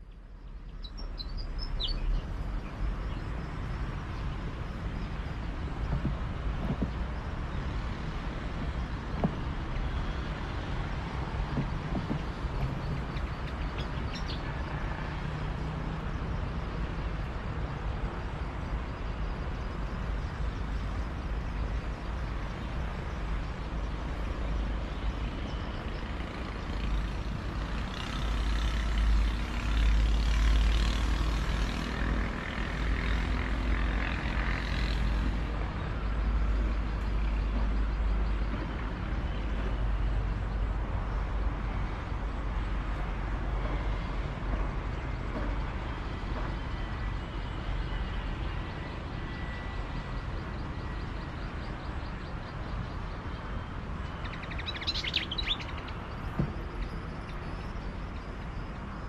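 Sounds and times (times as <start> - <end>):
continuous low rumble: 0.0 - 59.0
high bird chirps: 54.2 - 55.9.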